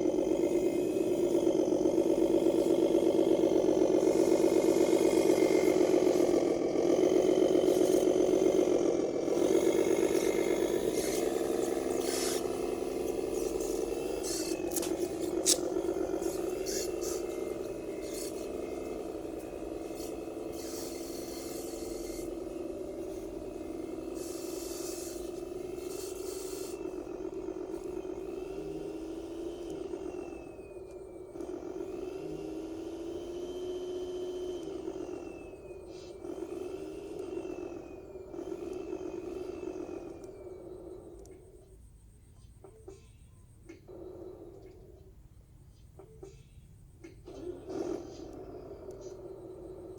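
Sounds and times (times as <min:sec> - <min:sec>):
toy truck electric whine: 0:00.0 - 0:49.9
scraping hiss: 0:13.2 - 0:18.7.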